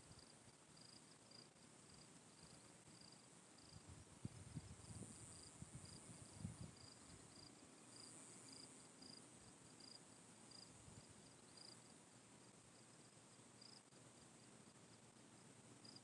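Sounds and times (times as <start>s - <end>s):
cricket chirping: 0.0s - 16.0s
high insect drone: 4.6s - 16.0s.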